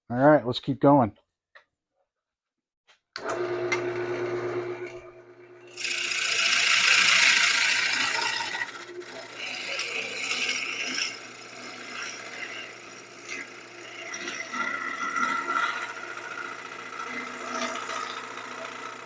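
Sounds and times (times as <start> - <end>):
wood lathe running: 3.2 - 19.0
turning tool scraping wood: 5.7 - 19.0.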